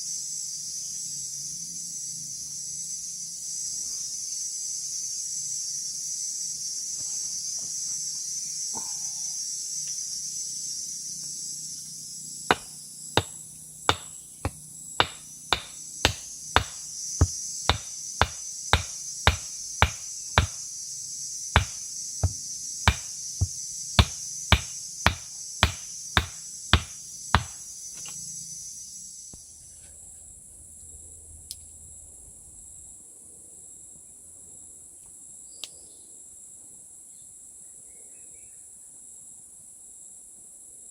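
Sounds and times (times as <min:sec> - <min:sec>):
high-pitched insect chorus: 0:00.0 - 0:40.9
sharp knocks: 0:12.5 - 0:20.7, 0:21.6 - 0:27.6.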